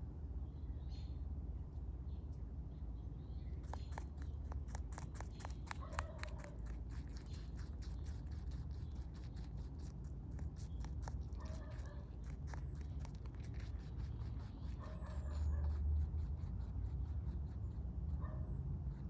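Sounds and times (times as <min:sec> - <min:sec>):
steady low hum: 0:00.0 - 0:19.0
rabbit chewing: 0:03.4 - 0:19.0.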